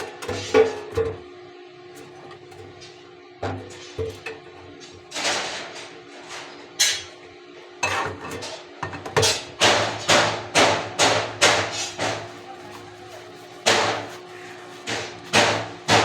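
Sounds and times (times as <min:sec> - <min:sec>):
hand tool striking metal: 0:13.6 - 0:16.0.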